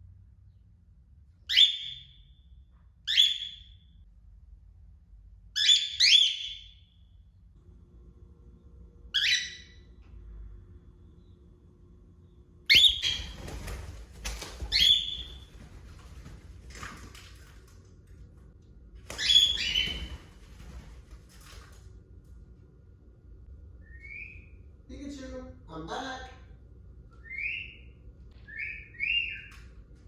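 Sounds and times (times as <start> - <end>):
cockatiel calling: 1.5 - 2.0, 3.1 - 3.7, 5.6 - 6.7, 9.2 - 9.8, 12.7 - 13.4, 14.7 - 15.3, 19.2 - 20.0.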